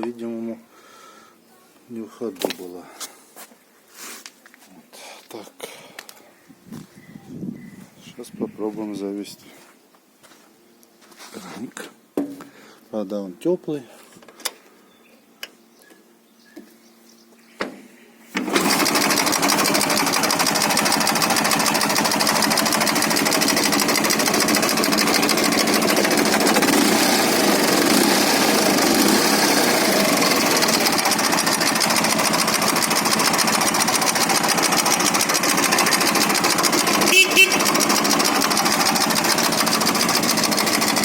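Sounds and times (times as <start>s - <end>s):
motorcycle engine idling: 18.4s - 41.0s.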